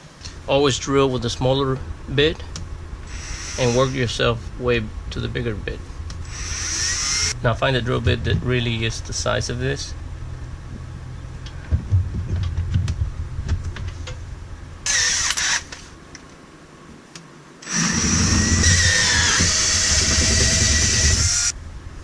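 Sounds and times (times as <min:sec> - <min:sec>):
power drill boring through metal: 0:03.1 - 0:04.0, 0:06.3 - 0:07.4, 0:14.9 - 0:15.6, 0:17.6 - 0:21.5.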